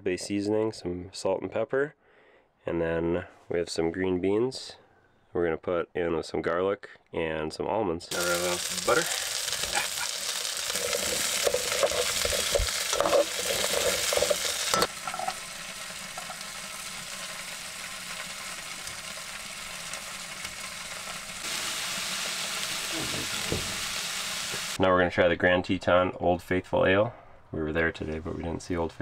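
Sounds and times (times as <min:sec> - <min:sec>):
food sizzling in a pan: 0:08.1 - 0:24.8
utensil scraping a pan: 0:08.3 - 0:15.5.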